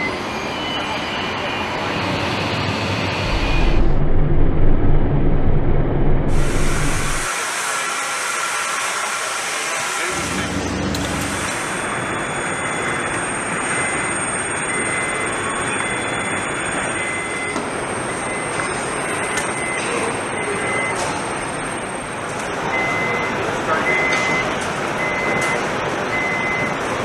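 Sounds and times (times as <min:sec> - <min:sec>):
loud machinery noise: 0:00.0 - 0:27.0
short high warning beeps: 0:22.8 - 0:25.6.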